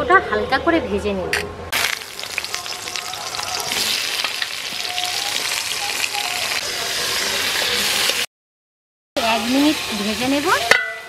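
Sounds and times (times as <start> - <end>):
vegetables sizzling in oil: 1.7 - 8.3, 9.2 - 11.0.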